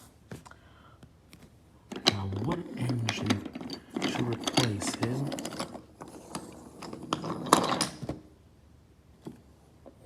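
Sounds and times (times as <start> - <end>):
wooden toy trains clattering: 1.9 - 8.2.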